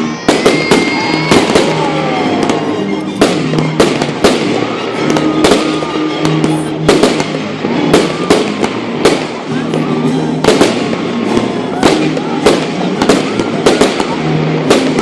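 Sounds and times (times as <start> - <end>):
fireworks bangs and crackles: 0.0 - 15.0
fireworks whistles: 0.0 - 15.0
music playing: 0.0 - 15.0.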